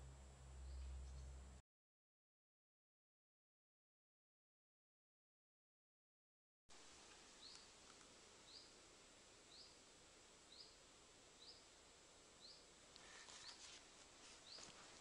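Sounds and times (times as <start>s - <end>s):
faint bird chirp: 0.0s - 1.4s, 6.9s - 8.8s, 9.4s - 11.8s, 12.4s - 15.0s
footsteps on dirt path: 13.0s - 15.0s.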